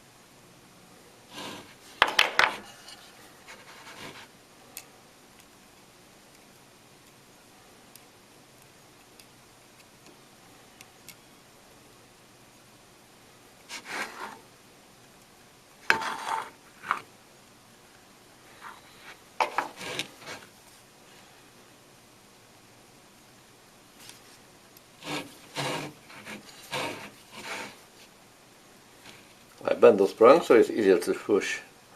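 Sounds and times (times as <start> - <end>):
hand tool scraping on metal: 1.3 - 4.3, 15.9 - 16.5, 19.4 - 20.5, 25.0 - 27.8.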